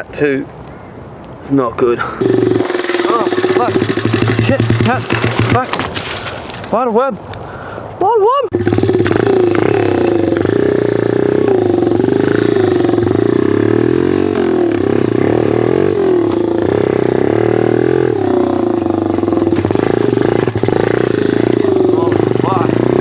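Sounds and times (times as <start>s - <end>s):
pit bike engine running: 2.2s - 6.2s, 8.5s - 23.0s.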